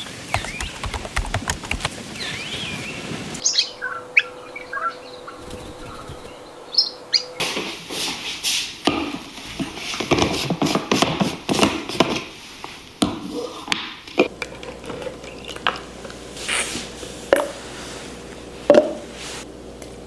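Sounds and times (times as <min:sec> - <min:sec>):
knocks: 0:00.0 - 0:02.5
light taps and clicks: 0:00.0 - 0:03.4.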